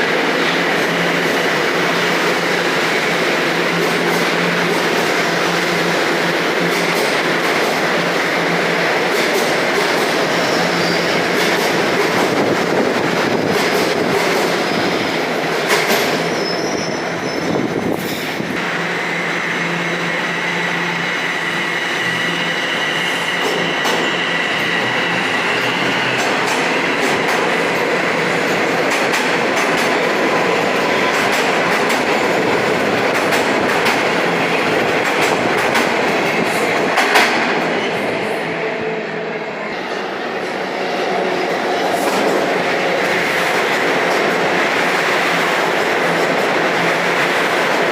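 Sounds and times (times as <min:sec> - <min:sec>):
subway train wheels rumbling: 0:00.0 - 0:47.9
high thin squeal: 0:16.2 - 0:17.6.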